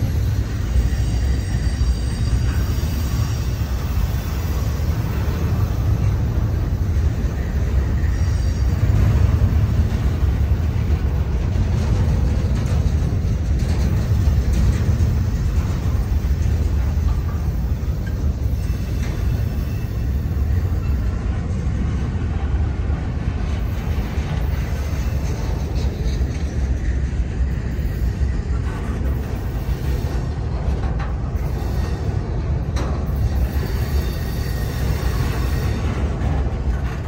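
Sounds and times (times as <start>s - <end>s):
wheel squeals: 0.0s - 21.3s, 31.3s - 37.0s
freight train wheels rumbling: 0.0s - 37.0s.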